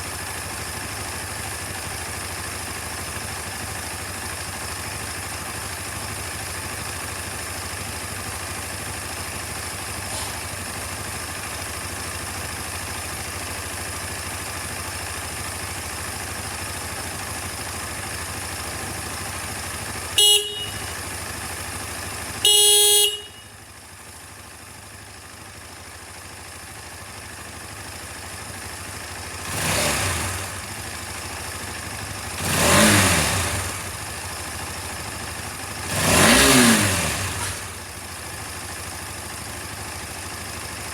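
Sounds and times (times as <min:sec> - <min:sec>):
motorcycle engine idling: 0:00.0 - 0:40.9
motorcycle horn: 0:20.0 - 0:21.5, 0:22.2 - 0:23.8
engine revving: 0:29.4 - 0:30.7, 0:32.3 - 0:34.0, 0:35.8 - 0:37.8.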